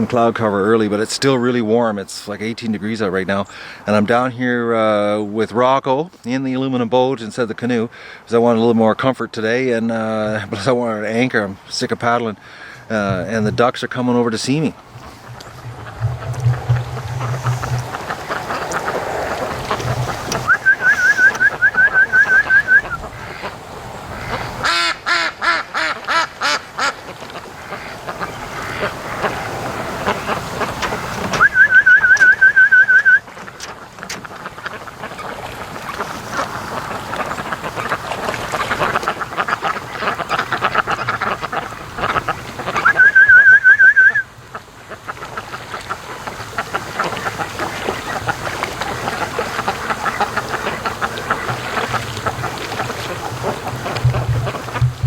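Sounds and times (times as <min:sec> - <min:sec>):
ducks quacking: 0:12.4 - 0:32.6, 0:33.3 - 0:55.0
high warbling trill: 0:14.9 - 0:18.8, 0:53.2 - 0:55.0.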